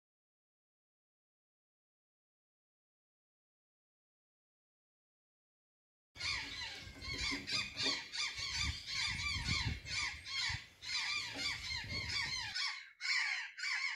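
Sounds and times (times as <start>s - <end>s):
jay squawking calls: 6.2s - 13.9s.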